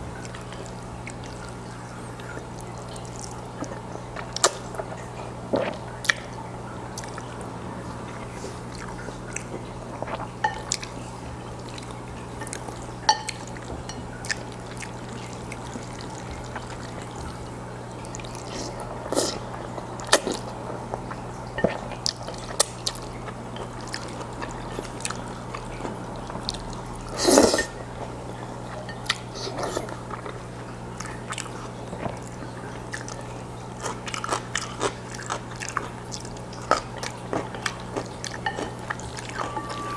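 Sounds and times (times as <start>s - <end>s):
wet chewing mouth sounds: 6.9s - 39.6s
low hum: 39.3s - 39.9s.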